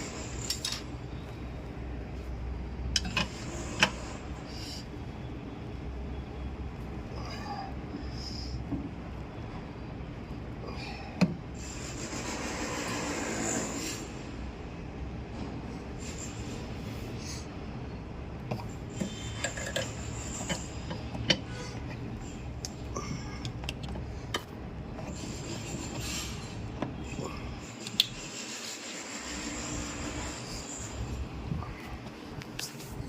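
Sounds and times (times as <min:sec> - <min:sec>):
metal tools clinking and scraping: 0:00.3 - 0:00.9, 0:19.0 - 0:22.0
steady low rumble: 0:29.8 - 0:33.0.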